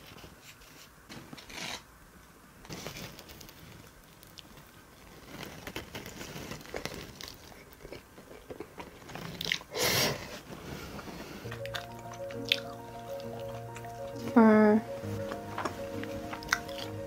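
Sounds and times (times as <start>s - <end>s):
person chewing crunchy pizza: 3.3s - 9.7s, 11.4s - 14.2s, 15.5s - 17.0s.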